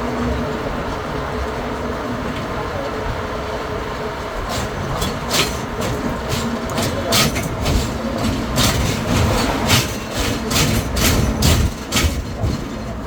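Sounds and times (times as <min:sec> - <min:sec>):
road train low rumble: 0:00.0 - 0:13.0
knocks and rattles: 0:04.5 - 0:13.0.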